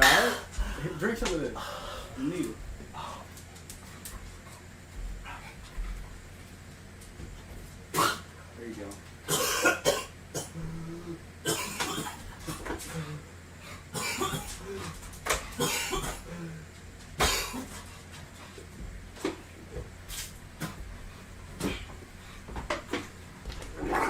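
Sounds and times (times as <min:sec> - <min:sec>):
man coughing and hacking: 0:00.0 - 0:00.9, 0:07.9 - 0:08.3, 0:09.3 - 0:13.2, 0:13.9 - 0:17.8, 0:21.6 - 0:22.0.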